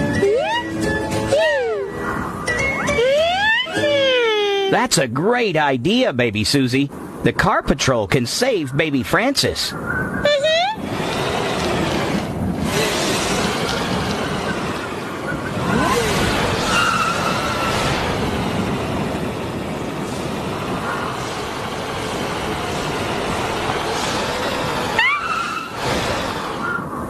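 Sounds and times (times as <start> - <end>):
cartoon vehicle driving noise: 0.0 - 5.0, 7.3 - 27.0
short rising squeal: 15.3 - 18.3, 23.8 - 27.0.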